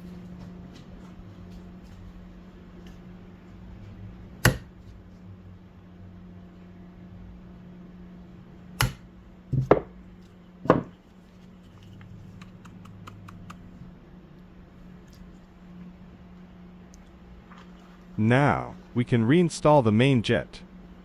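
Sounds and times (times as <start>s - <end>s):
hammer striking metal punch: 4.4s - 4.7s, 8.8s - 9.9s.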